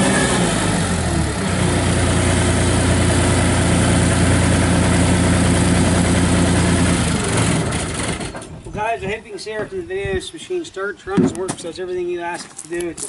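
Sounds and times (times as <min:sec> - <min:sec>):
skid steer diesel engine running: 0:00.0 - 0:08.6.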